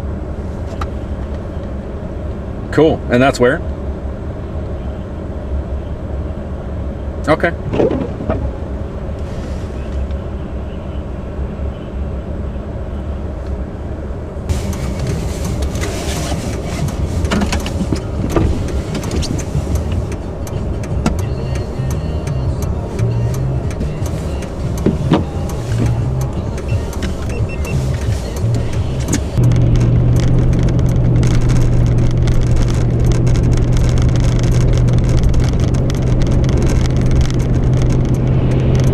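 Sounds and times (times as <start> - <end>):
car engine and tyres rumbling: 0.0 - 38.9
knocks and clicks: 7.6 - 8.6, 23.0 - 38.9.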